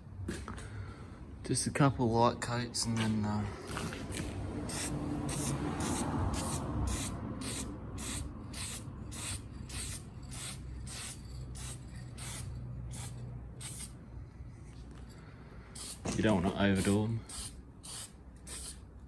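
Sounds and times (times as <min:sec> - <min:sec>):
aerosol spray bursts: 0:04.7 - 0:13.9, 0:16.8 - 0:18.8.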